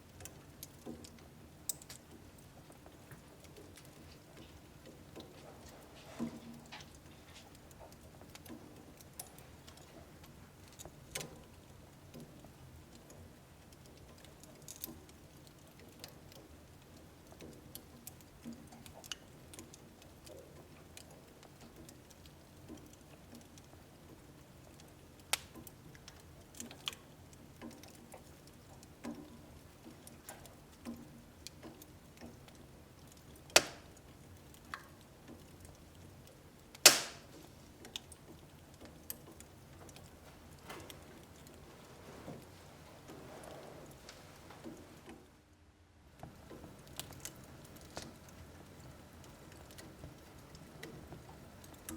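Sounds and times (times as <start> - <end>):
soft ticks and pops: 0.0 - 41.7, 46.1 - 51.9
wood fire crackling: 0.0 - 51.9
sharp loud wood snaps: 33.1 - 34.0, 36.7 - 38.1.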